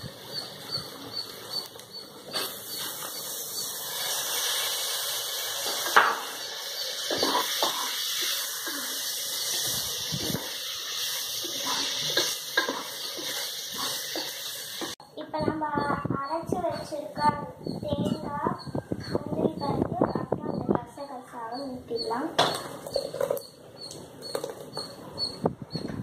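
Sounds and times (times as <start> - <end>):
masala sizzling in hot oil: 1.3 - 15.0
wooden spatula scraping pot: 11.4 - 15.0.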